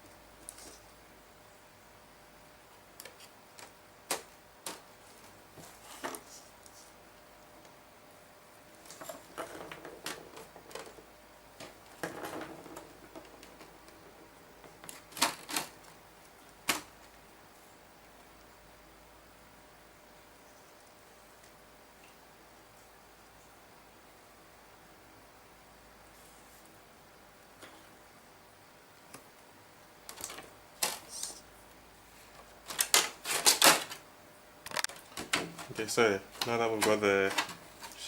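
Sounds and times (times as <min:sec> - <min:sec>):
small hard parts clicking: 0:34.6 - 0:38.0.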